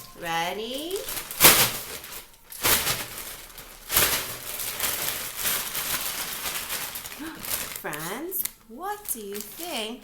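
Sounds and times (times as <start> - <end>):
bag rustling: 0.0 - 8.2.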